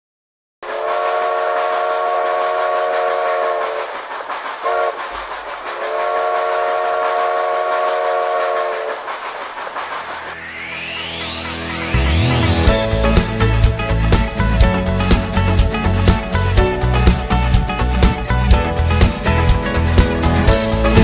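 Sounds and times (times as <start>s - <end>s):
train horn blasts: 0.6s - 3.9s, 4.6s - 5.0s, 5.8s - 9.0s
moving train rushing: 0.6s - 21.0s.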